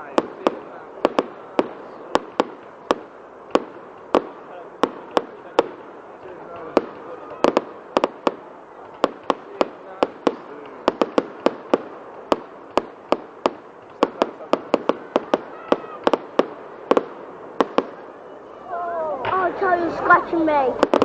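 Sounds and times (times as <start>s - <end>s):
fireworks banging: 0.0s - 21.0s
fireworks crackle and rumble: 0.0s - 21.0s.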